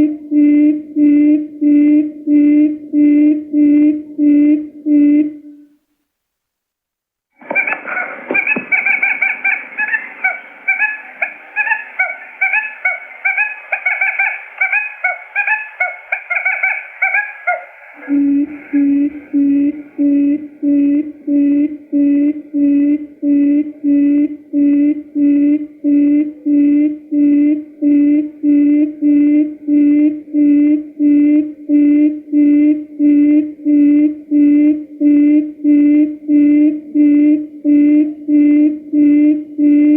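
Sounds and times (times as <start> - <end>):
rapid high quail chirping: 7.4 - 19.4
low hooting call: 7.4 - 39.9.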